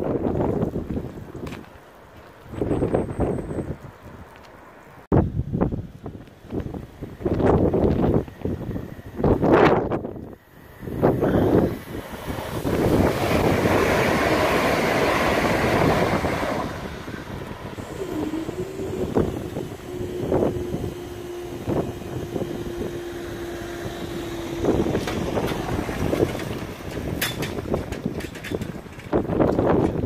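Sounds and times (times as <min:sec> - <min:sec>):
wind buffeting microphone: 0:00.0 - 0:30.0
steady hum: 0:08.6 - 0:27.8
electric train passing: 0:10.3 - 0:28.0.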